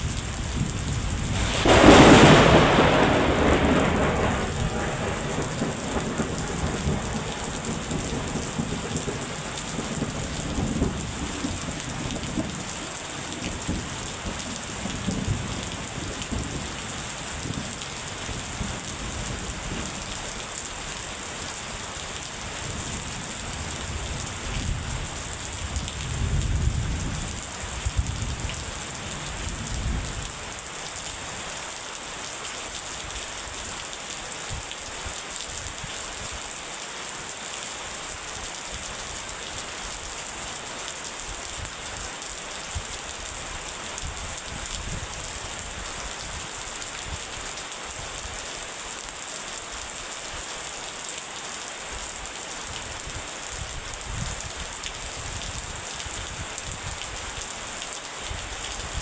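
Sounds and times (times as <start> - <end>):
heavy rain hissing: 0.0 - 35.4
rolling thunder: 0.1 - 30.3.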